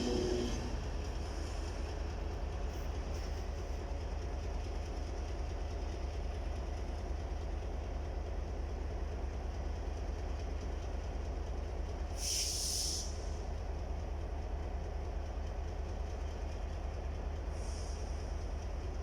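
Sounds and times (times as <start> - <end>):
diesel locomotive engine rumble: 0.0 - 19.0
air hiss: 12.2 - 13.3.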